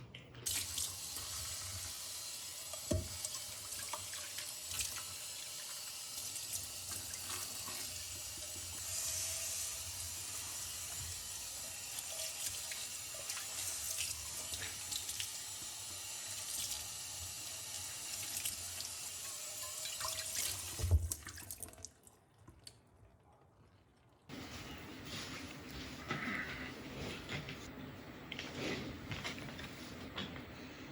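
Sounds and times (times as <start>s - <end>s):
tap running into sink: 2.8s - 3.3s.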